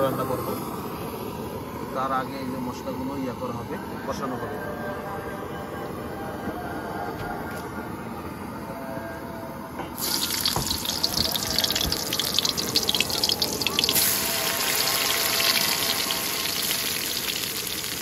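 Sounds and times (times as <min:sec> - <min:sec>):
vegetables sizzling in hot oil: 0:10.0 - 0:18.0.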